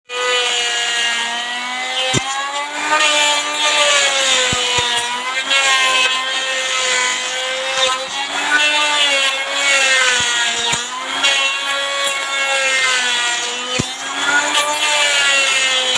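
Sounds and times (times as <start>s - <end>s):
wood router motor whine: 0.1s - 15.9s
sharp clicks: 9.9s - 11.4s.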